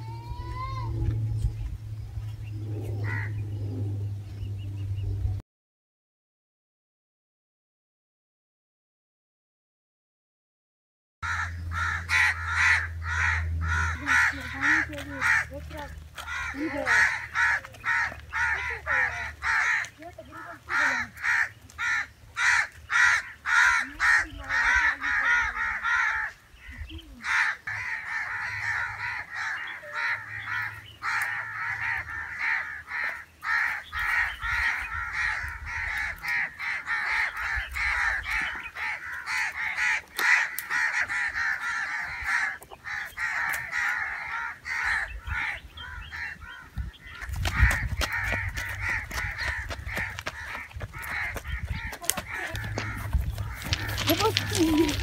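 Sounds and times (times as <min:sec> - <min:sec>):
chorus of birds calling: 0:00.0 - 0:05.3, 0:11.2 - 0:55.0
low rumble: 0:00.0 - 0:05.4, 0:46.6 - 0:55.0
crow-like caws: 0:03.0 - 0:03.4, 0:11.2 - 0:55.0.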